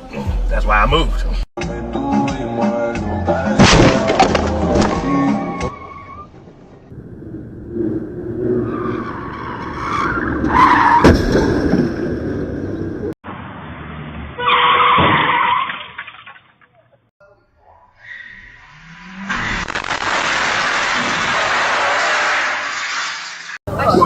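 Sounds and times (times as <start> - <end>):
car engine and road noise: 0.0 - 16.1, 17.6 - 24.0
car crash impact: 3.5 - 5.7, 10.9 - 12.2, 19.0 - 23.6.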